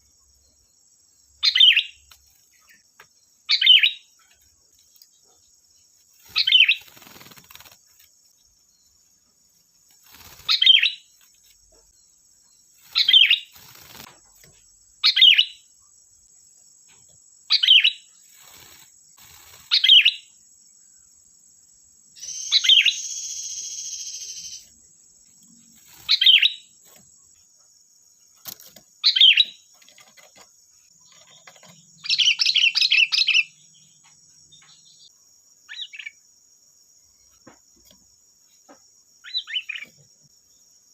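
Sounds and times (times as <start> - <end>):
high insect drone: 0.0 - 40.9
bulbul calling: 1.4 - 2.8, 15.0 - 15.7, 22.2 - 24.7.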